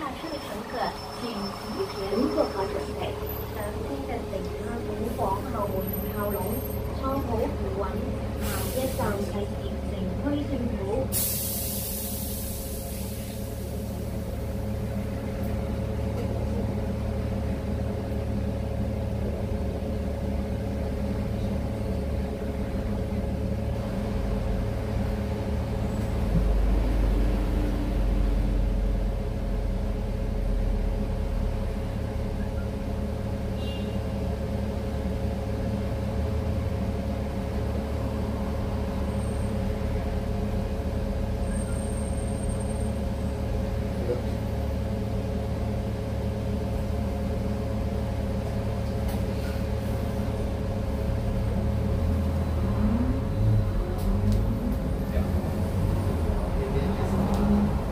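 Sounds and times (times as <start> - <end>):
constant whine: 0.0 - 11.1
bus engine low rumble: 0.0 - 57.9.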